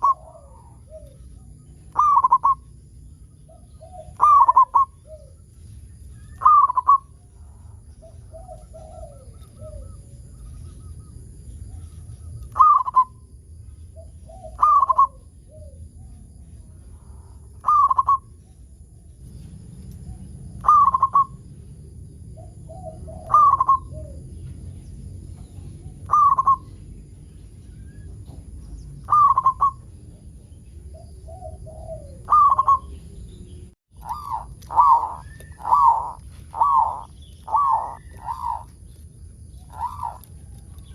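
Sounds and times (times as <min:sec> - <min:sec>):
dove cooing: 0:00.0 - 0:02.7, 0:03.5 - 0:05.5, 0:06.2 - 0:11.0, 0:11.6 - 0:13.2, 0:14.0 - 0:16.2, 0:17.0 - 0:18.3, 0:20.1 - 0:21.4, 0:22.4 - 0:24.5, 0:25.8 - 0:26.7, 0:29.0 - 0:29.9, 0:30.9 - 0:40.9.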